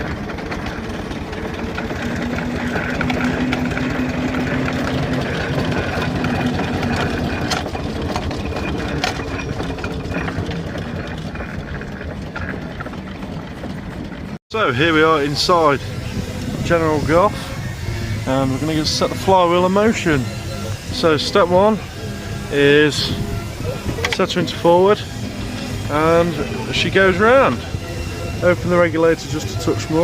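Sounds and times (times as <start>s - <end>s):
engine running with low hum: 0.0s - 30.0s.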